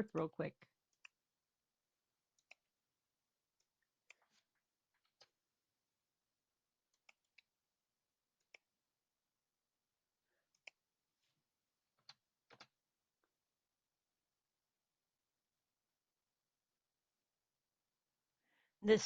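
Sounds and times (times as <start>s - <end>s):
computer clicks: 2.4s - 2.6s.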